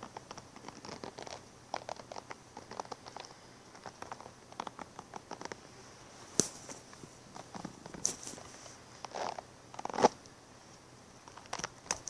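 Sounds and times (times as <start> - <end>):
brush and comb scratching: 6.2 - 10.1.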